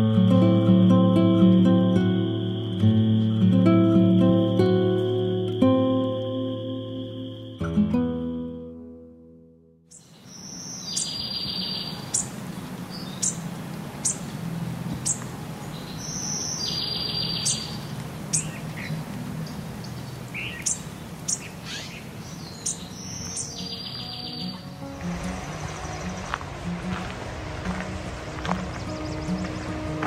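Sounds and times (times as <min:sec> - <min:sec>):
bird trilled song: 0:09.9 - 0:26.4, 0:28.2 - 0:30.0
low rushing background: 0:17.6 - 0:30.0.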